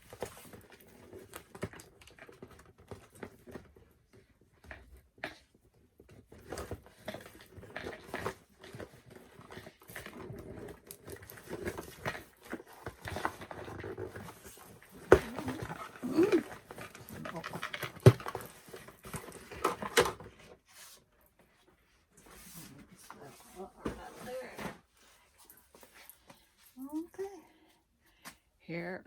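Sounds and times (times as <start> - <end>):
packaging being handled and opened: 6.3 - 21.0.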